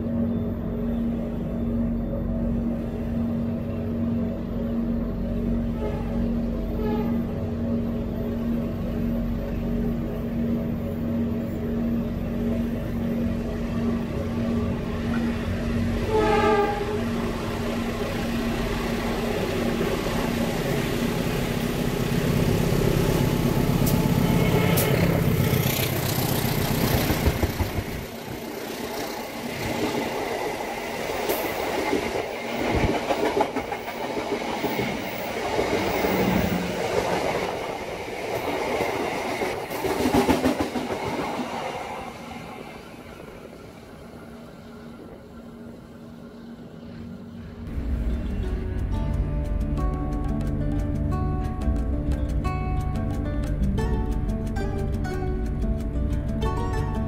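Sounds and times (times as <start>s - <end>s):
diesel locomotive engine rumbling: 0.0s - 57.0s
train horn: 4.8s - 7.9s, 16.0s - 18.3s, 23.5s - 25.4s.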